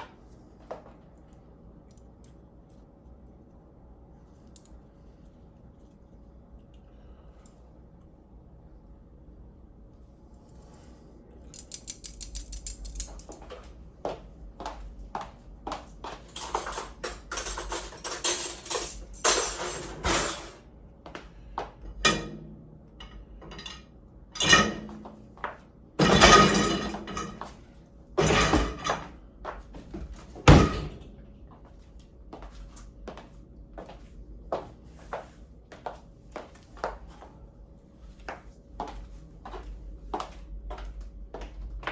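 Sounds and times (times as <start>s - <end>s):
utensils rattling: 11.6s - 13.4s, 16.3s - 20.6s
dishes and cutlery clattering: 16.4s - 20.6s, 24.4s - 25.0s, 26.0s - 27.5s.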